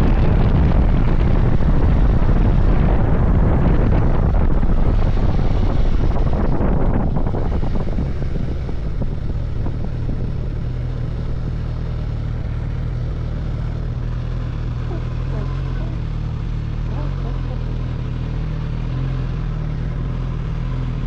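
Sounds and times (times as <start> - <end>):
wind rushing over microphone: 0.0 - 16.5
motorcycle engine running: 0.0 - 21.0.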